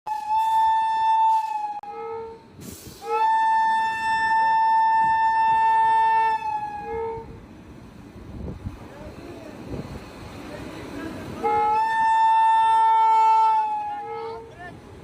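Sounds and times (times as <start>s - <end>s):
train horn blasts: 0.1s - 7.4s, 11.4s - 14.6s
brief air hiss: 2.6s - 3.2s.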